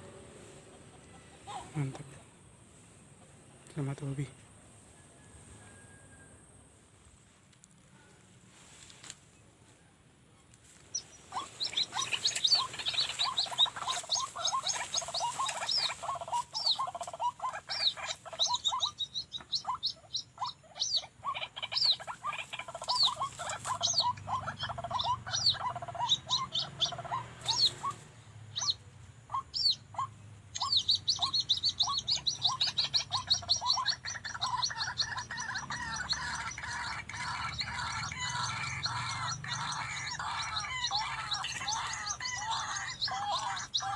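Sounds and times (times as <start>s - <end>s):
waterhens calling: 10.9s - 28.0s, 28.6s - 43.9s.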